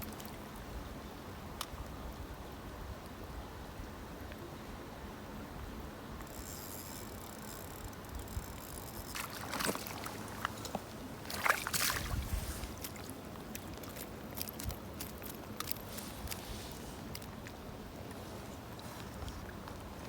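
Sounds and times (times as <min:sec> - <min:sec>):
water splashing: 0:09.1 - 0:17.6.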